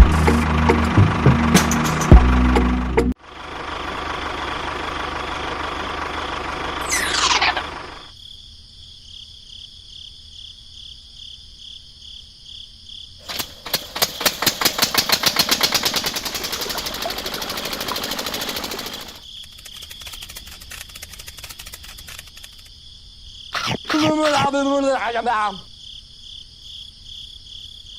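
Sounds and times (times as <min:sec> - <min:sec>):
insects chirring: 0:06.8 - 0:14.5, 0:15.1 - 0:27.9
rapid mechanical rattle: 0:13.2 - 0:22.7.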